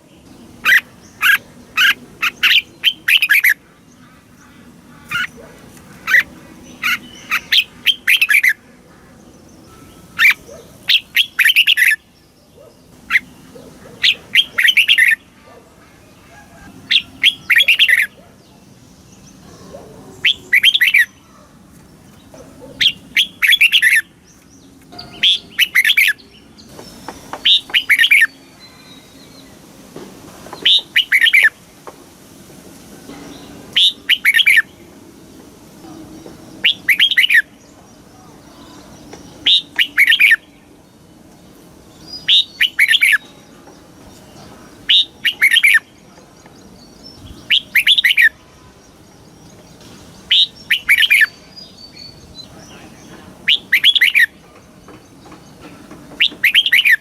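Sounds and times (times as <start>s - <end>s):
bird singing whistled phrases: 36.6s - 37.5s, 47.3s - 48.4s, 53.5s - 54.3s.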